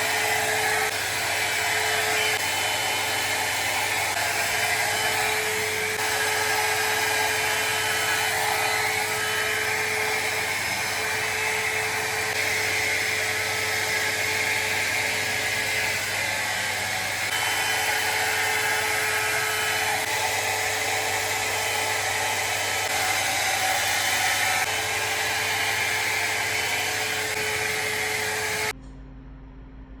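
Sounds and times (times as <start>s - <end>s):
hot air brush fan whoosh: 0.0s - 28.8s.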